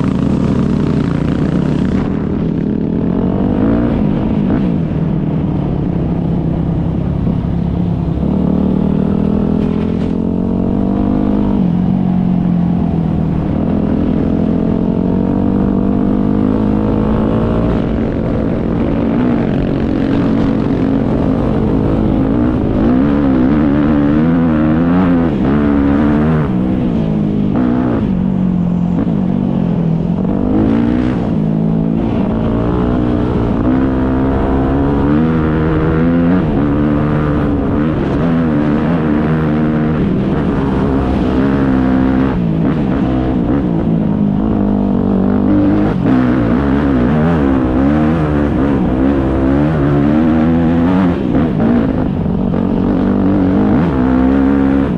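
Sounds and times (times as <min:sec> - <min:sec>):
dirt bike engines revving: 0:00.0 - 0:54.9.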